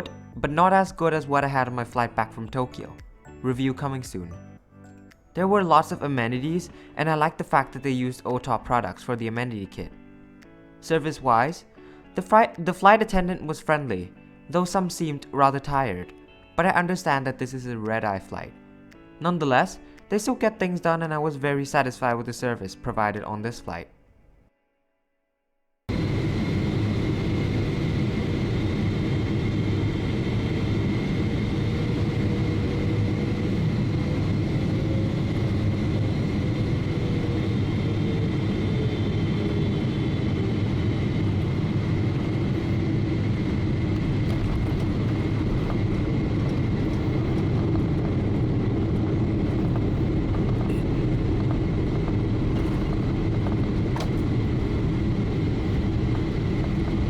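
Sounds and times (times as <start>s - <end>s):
airliner cabin engine rush: 25.9s - 57.0s
thin high whine: 25.9s - 57.0s.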